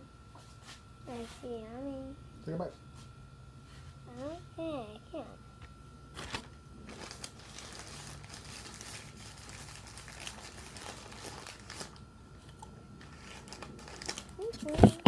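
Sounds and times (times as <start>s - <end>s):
crinkling and crackling: 6.2s - 15.0s.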